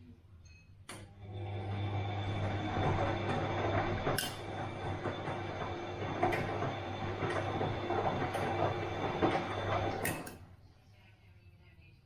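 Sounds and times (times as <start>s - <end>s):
washing machine running: 0.9s - 10.5s
washing machine drum knocking: 2.3s - 10.3s.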